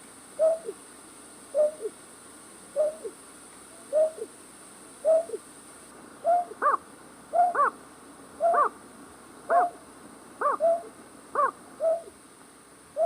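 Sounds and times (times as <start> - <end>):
night bird call: 0.4 - 0.8, 1.5 - 2.0, 2.8 - 3.2, 3.8 - 4.3, 5.0 - 5.5, 6.2 - 7.8, 8.4 - 8.8, 9.5 - 9.8, 10.4 - 12.2.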